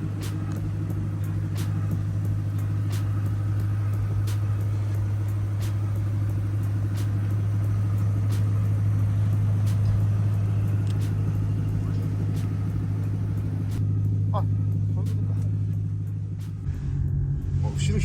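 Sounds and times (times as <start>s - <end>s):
car engine droning: 0.0s - 18.0s
faint clicks: 0.2s - 13.8s.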